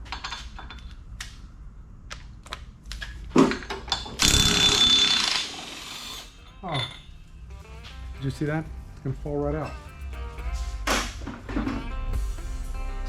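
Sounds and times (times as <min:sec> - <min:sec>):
impact wrench hammering: 0:04.2 - 0:06.4.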